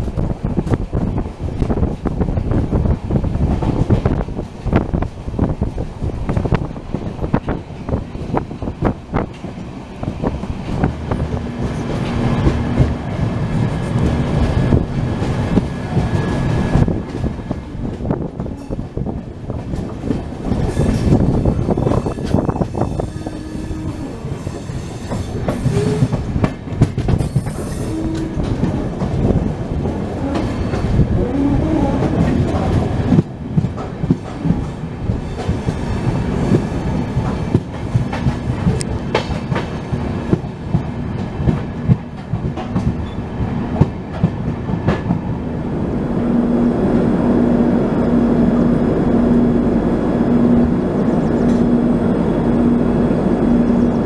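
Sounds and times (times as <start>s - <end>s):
train rumble: 0.0s - 54.0s
train wheels clattering over rail joints: 3.2s - 31.2s, 32.0s - 45.3s.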